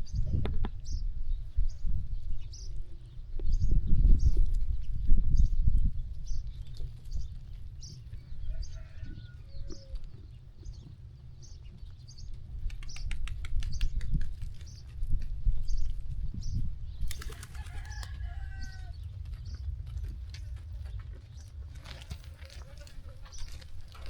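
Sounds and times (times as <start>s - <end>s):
steady low rumble: 18.2s - 24.0s.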